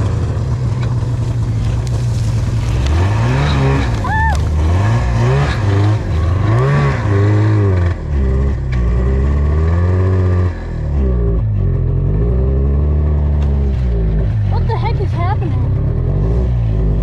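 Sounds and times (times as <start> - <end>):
snowmobile engine revving roughly: 0.0 - 17.0
person talking: 14.5 - 15.8.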